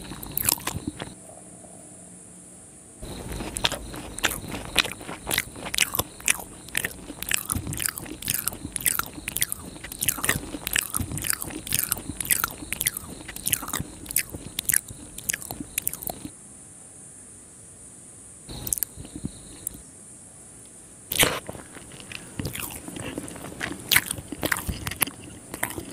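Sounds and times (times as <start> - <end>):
wet chewing and lip-smacking: 0.0 - 1.2, 3.0 - 16.3, 18.5 - 19.8, 21.1 - 25.9.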